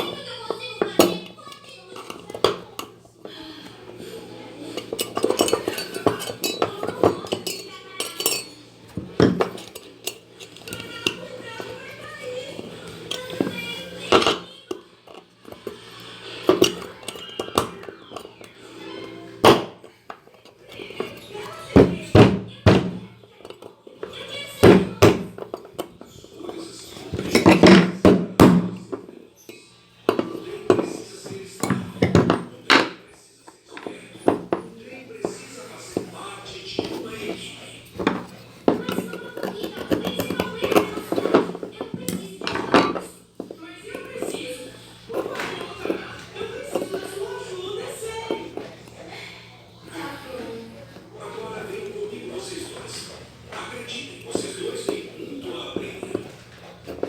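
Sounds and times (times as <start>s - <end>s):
hard parts knocking and clinking: 0.0s - 3.0s, 4.7s - 33.0s, 35.3s - 44.5s.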